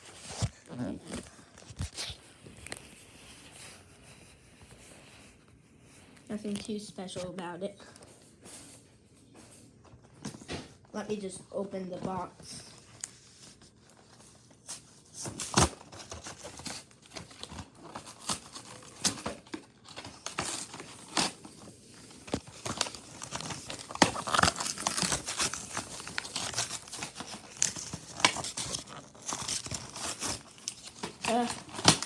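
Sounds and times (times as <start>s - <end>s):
packaging crinkling and tearing: 12.6s - 32.0s.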